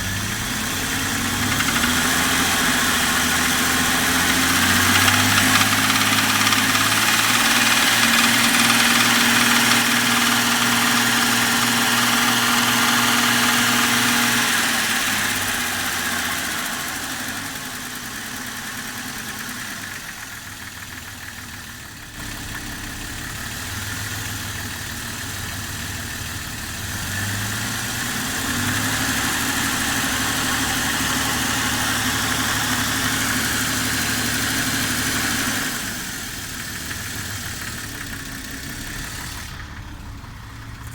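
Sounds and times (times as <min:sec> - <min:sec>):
car engine idling with knock: 0:00.0 - 0:40.9.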